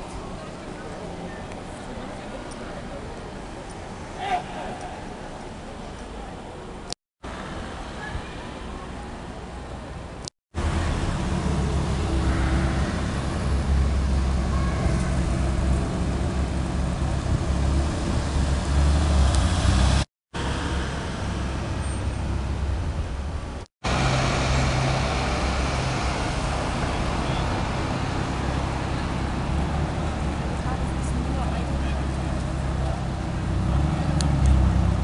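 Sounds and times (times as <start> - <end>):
city traffic noise: 0.0 - 35.0.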